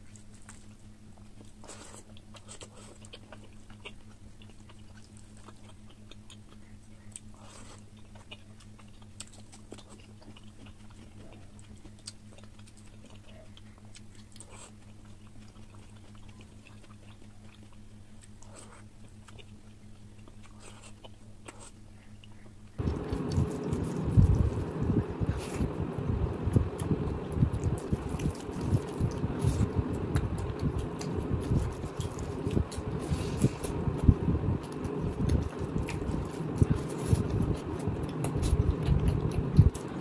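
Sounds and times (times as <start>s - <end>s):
low hum: 0.0s - 40.0s
wet chewing and mouth smacks: 0.0s - 40.0s.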